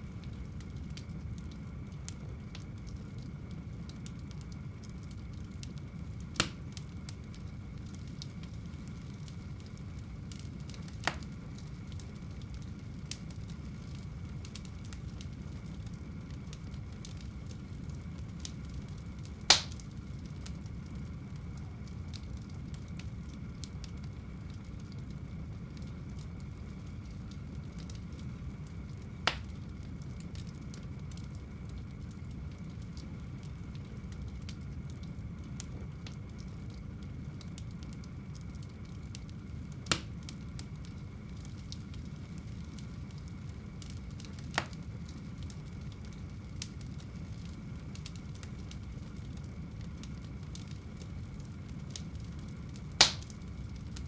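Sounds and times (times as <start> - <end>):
fire burning in fireplace: 0.0 - 54.0
sharp fire pops: 6.2 - 20.6, 27.7 - 30.5, 39.8 - 40.6, 43.8 - 45.2, 52.9 - 54.0.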